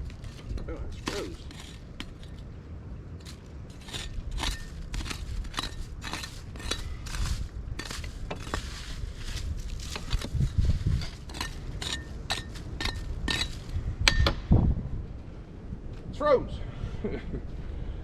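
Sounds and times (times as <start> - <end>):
scraping ashes from metal fire ring: 0.0 - 2.5, 3.2 - 13.8.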